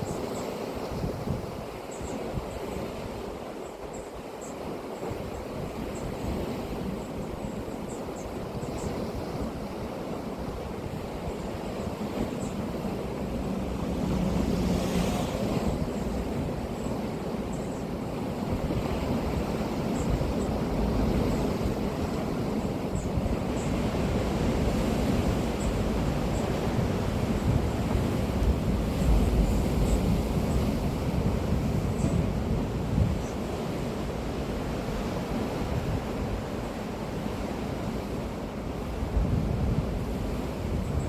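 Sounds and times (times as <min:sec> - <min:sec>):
sea surf rushing: 0:04.7 - 0:41.0
wave crashing: 0:13.0 - 0:16.6.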